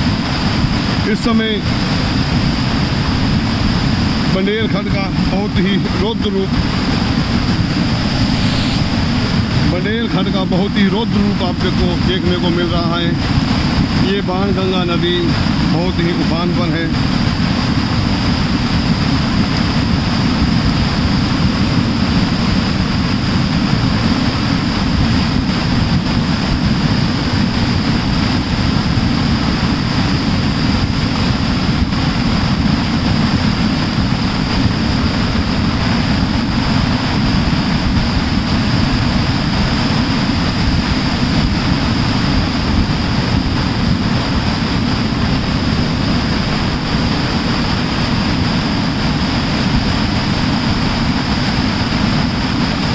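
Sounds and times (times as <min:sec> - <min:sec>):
floodwater rushing: 0:00.0 - 0:52.9.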